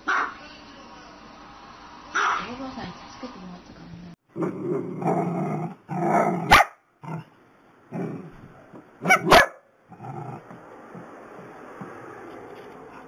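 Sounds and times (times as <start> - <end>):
dogs barking excitedly: 2.1 - 2.5, 4.4 - 7.2, 9.0 - 10.4.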